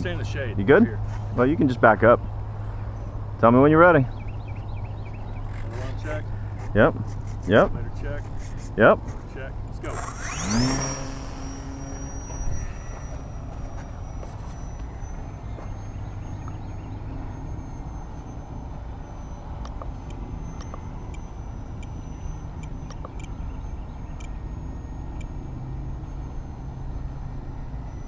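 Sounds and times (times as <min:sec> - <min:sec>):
model plane motor whining: 0:09.7 - 0:28.0.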